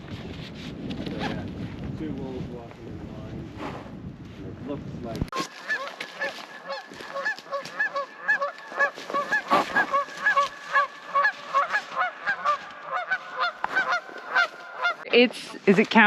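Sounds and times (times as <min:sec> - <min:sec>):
geese honking: 0:05.3 - 0:15.1.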